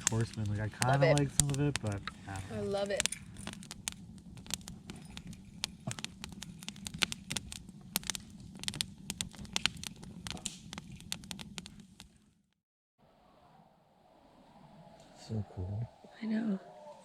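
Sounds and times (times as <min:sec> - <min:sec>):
campfire crackling and popping: 0:00.0 - 0:12.5.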